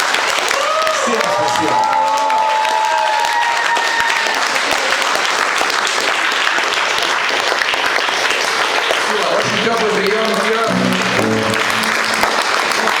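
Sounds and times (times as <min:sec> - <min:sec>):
audience applauding: 0:00.0 - 0:13.0
faint tones: 0:10.6 - 0:13.0.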